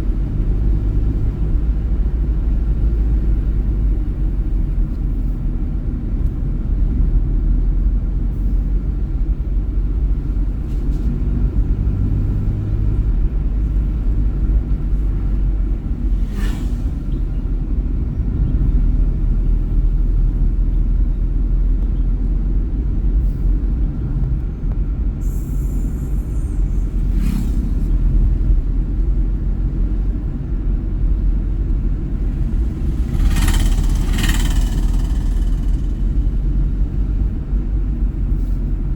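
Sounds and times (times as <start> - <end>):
vehicle driving on road rumble: 0.0 - 38.9
knocks and rattles: 32.2 - 36.3.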